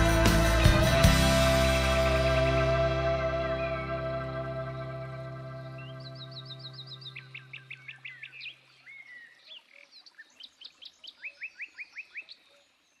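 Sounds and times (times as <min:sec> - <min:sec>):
held music chord: 0:00.0 - 0:07.8
songbirds chirping: 0:00.8 - 0:13.0.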